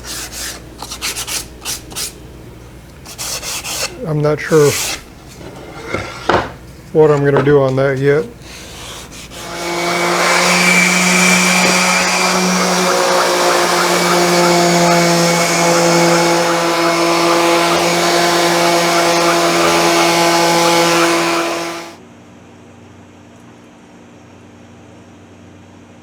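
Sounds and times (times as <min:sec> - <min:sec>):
electric sander on wood: 0:03.1 - 0:22.0.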